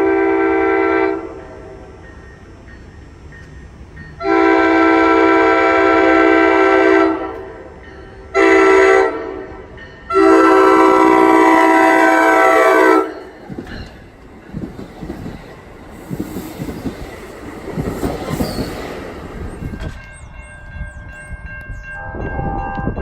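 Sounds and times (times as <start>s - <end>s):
train air horn blasts: 0.0s - 1.8s, 4.2s - 7.7s, 8.3s - 13.3s.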